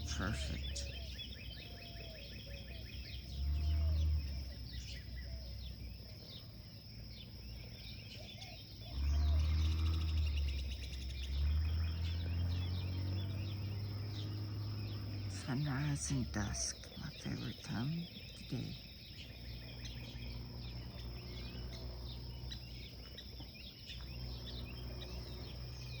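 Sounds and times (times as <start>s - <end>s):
birds chirping and calling: 0.0s - 26.0s
steady high hum: 13.7s - 26.0s.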